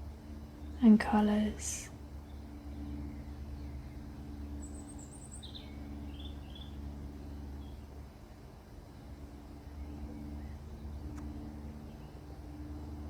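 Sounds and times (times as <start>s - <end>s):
steady low hum: 0.0s - 13.0s
faint bird chirps: 0.5s - 8.5s.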